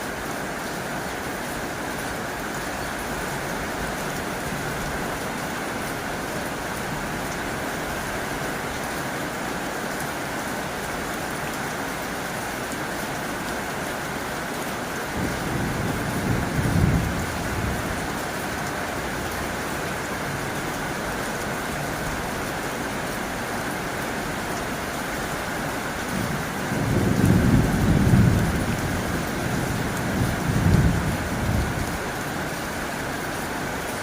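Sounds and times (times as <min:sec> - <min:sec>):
heavy rain on a tin roof: 0:00.0 - 0:34.0.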